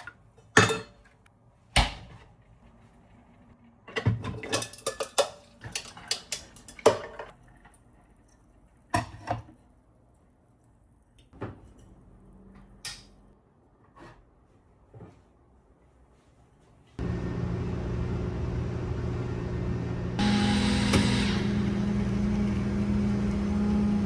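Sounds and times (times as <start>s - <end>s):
dishes and cutlery clattering: 0.0s - 1.2s, 3.9s - 7.4s.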